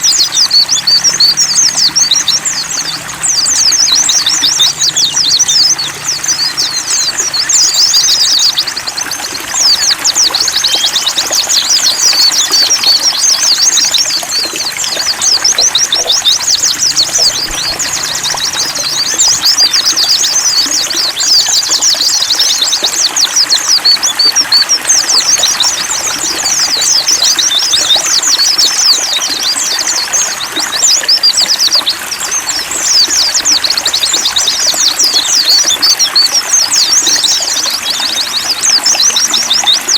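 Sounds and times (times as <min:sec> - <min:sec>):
birds twittering: 0:00.0 - 0:39.9
trickle of running water: 0:00.0 - 0:39.9.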